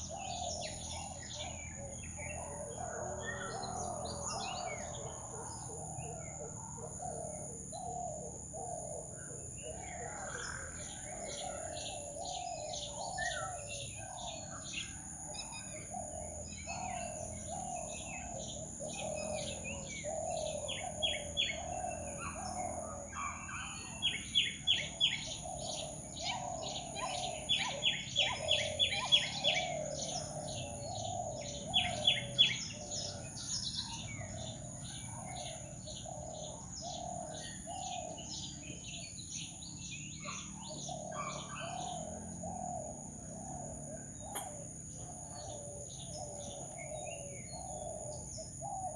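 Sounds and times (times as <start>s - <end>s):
birds chirping and calling: 0.0s - 48.9s
high insect drone: 0.0s - 48.9s
repeated low bird call: 0.0s - 48.9s
loud sharp chirps: 44.3s - 44.7s.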